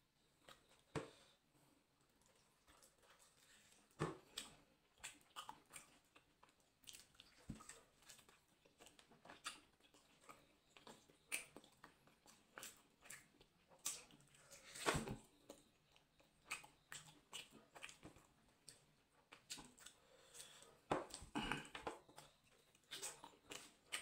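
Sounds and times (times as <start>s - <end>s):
person chewing and biting meat: 2.2s - 24.0s.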